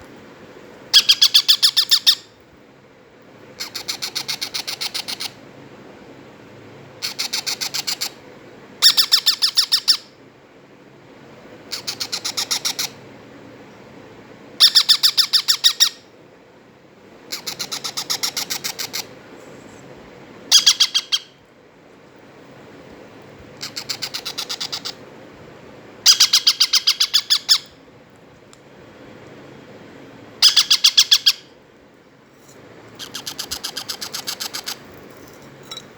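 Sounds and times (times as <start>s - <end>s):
parrot chicks begging calls: 0.9s - 2.4s, 3.6s - 5.4s, 7.0s - 8.2s, 8.8s - 10.1s, 11.7s - 13.0s, 14.6s - 16.1s, 17.3s - 19.2s, 20.5s - 21.4s, 23.6s - 25.1s, 26.0s - 27.8s, 30.4s - 31.6s, 33.0s - 35.0s.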